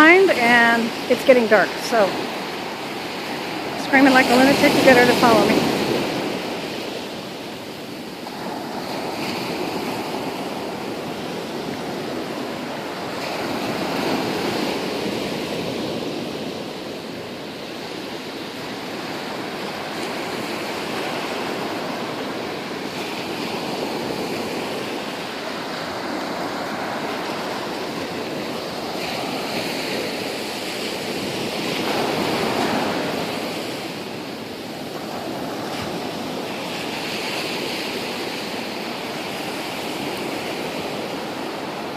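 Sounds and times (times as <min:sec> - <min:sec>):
ocean waves breaking on shore: 0:00.0 - 0:41.9.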